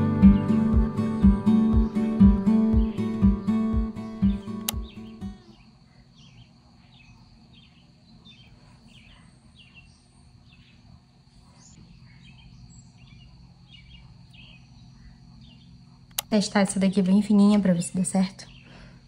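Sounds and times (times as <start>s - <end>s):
faint small birds chirping: 0.0s - 19.0s.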